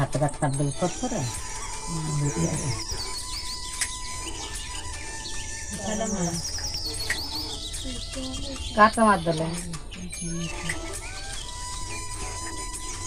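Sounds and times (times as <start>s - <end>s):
small birds chirping: 0.0s - 13.0s
low voices: 7.4s - 11.2s.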